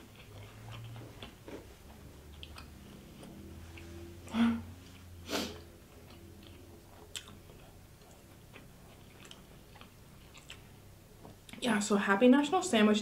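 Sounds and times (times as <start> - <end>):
chewing with wet mouth clicks: 0.0 - 1.6, 2.2 - 3.9, 5.6 - 10.8.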